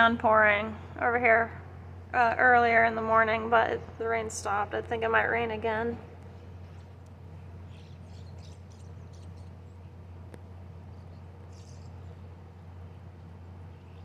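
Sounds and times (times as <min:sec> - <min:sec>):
steady low hum: 0:00.0 - 0:14.0
small birds chirping: 0:03.6 - 0:14.0.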